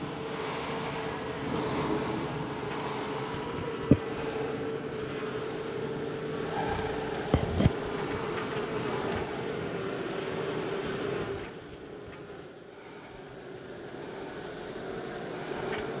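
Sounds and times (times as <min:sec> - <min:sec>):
honey bees buzzing: 0:00.0 - 0:16.0.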